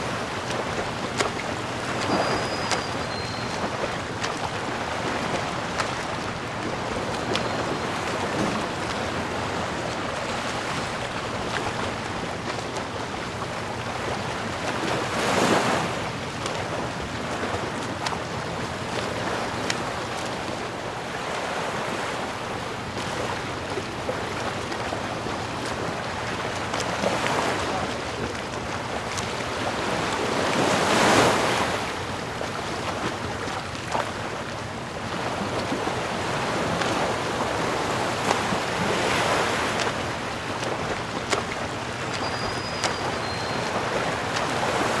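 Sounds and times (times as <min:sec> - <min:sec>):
ocean waves washing in: 0:00.0 - 0:23.4.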